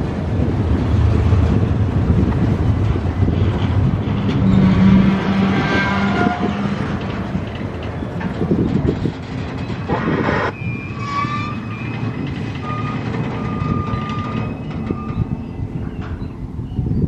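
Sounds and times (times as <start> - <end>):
freight train cars rumbling: 0.0 - 17.0
high-pitched wheel squeal: 4.2 - 7.0, 9.6 - 17.0.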